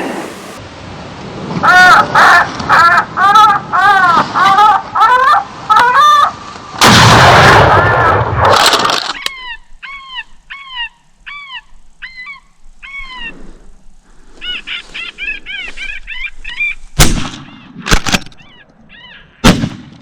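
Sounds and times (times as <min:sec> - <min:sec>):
loud shots: 0:06.8 - 0:08.9, 0:17.0 - 0:18.2, 0:19.4 - 0:20.0.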